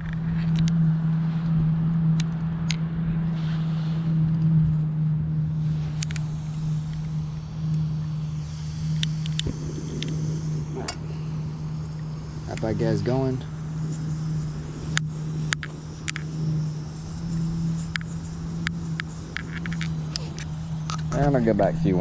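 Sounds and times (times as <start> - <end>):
camp stove burning hum: 0.0 - 22.0
light clicks: 5.9 - 6.3.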